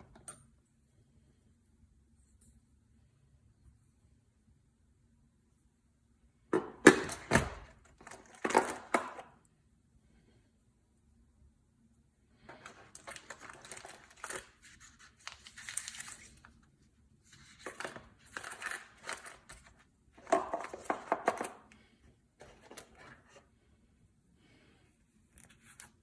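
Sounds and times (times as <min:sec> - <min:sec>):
plastic packaging crinkling: 0:12.6 - 0:16.6.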